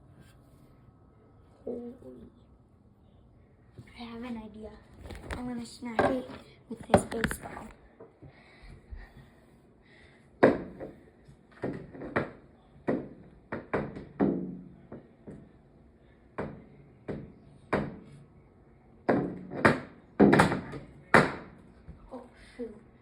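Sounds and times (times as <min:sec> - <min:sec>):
baseball banging on hard surfaces: 0:19.1 - 0:21.6.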